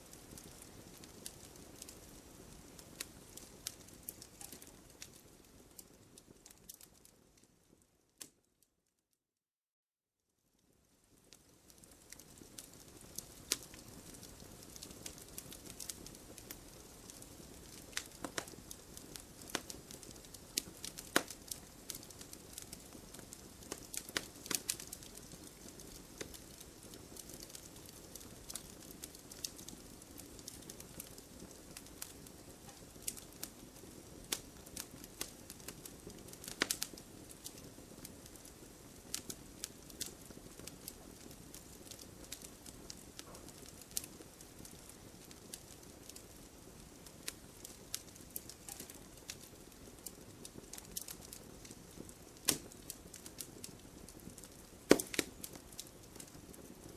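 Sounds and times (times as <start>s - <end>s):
bonfire hissing and crackling: 0.0s - 8.3s, 10.6s - 56.9s.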